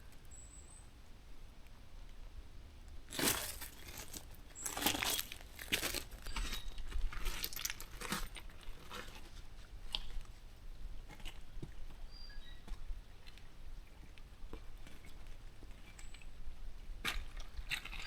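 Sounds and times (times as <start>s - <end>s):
footsteps crunching dry leaves: 3.1s - 9.3s.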